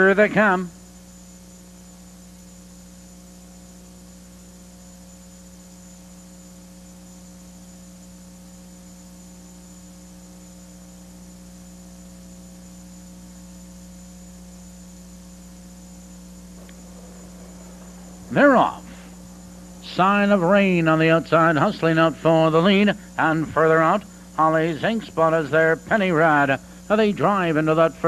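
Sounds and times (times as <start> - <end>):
electrical mains hum: 0.0 - 28.0
recording hiss: 15.0 - 28.0.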